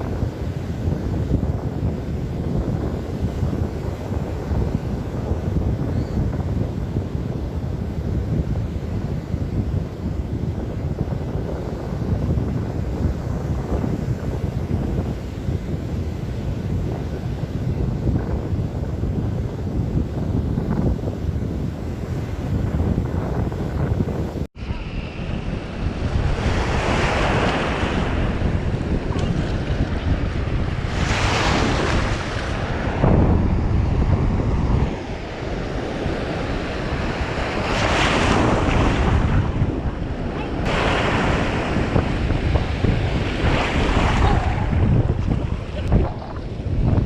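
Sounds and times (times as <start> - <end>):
wind buffeting microphone: 0.0 - 47.0
surf breaking on beach: 24.5 - 47.0.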